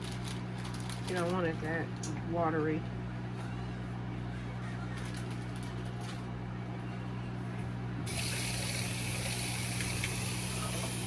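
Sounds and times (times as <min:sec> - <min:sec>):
tap water running into sink: 0:08.1 - 0:11.0.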